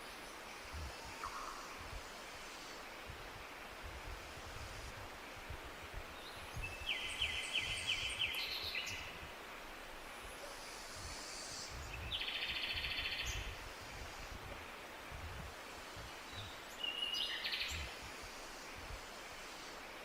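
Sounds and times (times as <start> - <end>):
songbirds singing: 6.0 - 9.2, 10.3 - 15.0, 16.0 - 19.8.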